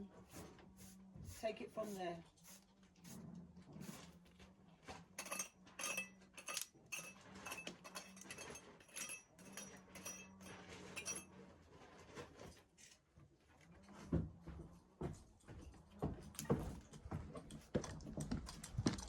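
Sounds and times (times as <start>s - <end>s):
metal tool scraping stone mortar: 5.2s - 11.3s.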